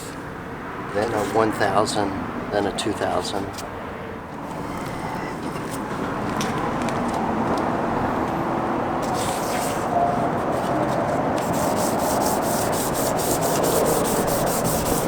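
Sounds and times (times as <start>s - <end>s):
sandpaper rubbing on plastic: 9.0s - 15.0s.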